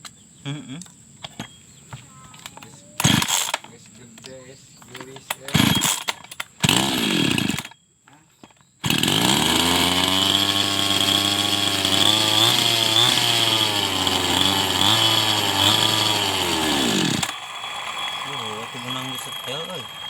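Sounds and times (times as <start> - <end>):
small petrol engine running unevenly: 3.0 - 3.7, 5.5 - 7.7, 8.8 - 20.0.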